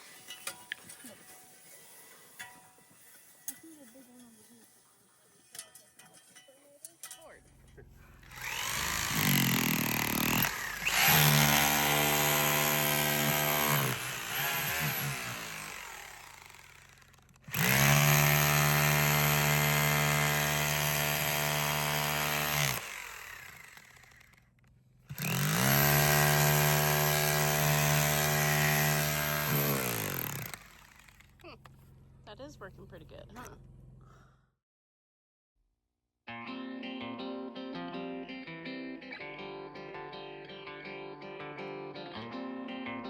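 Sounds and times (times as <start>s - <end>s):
auger engine revving: 7.8s - 24.2s, 25.1s - 34.1s.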